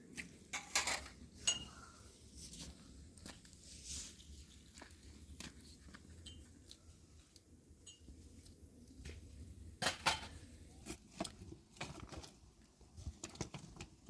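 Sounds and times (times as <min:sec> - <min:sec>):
clicks and knocks of small objects: 0:09.8 - 0:14.0.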